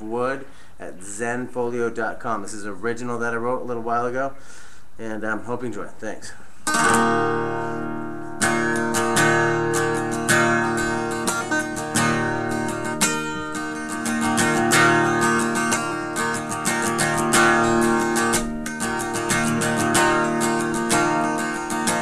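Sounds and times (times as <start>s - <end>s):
acoustic guitar strumming: 6.6s - 22.0s.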